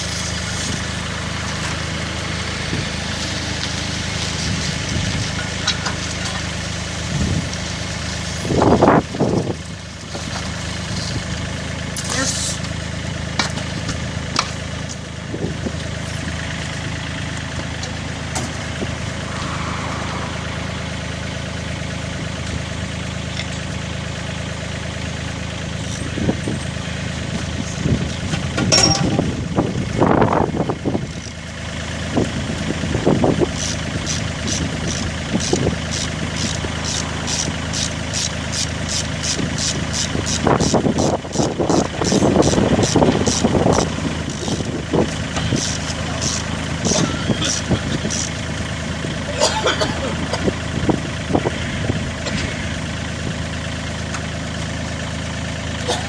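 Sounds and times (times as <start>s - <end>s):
excavator diesel engine running: 0.0s - 56.0s
fast regular ticking: 33.6s - 48.4s.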